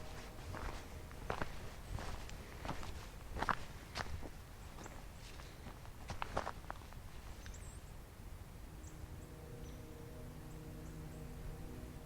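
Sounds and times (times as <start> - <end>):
soft background music: 0.0 - 4.0, 7.8 - 12.0.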